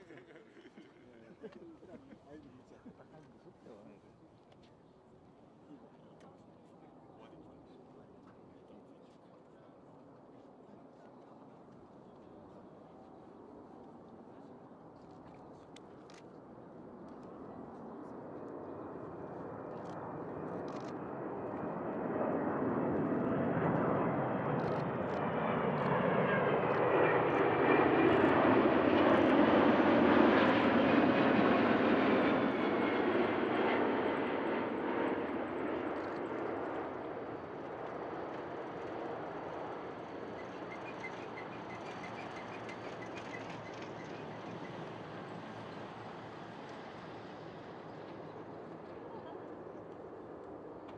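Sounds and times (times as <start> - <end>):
faint high engine whine: 0.0 - 50.9
jet airliner passing: 16.4 - 50.9.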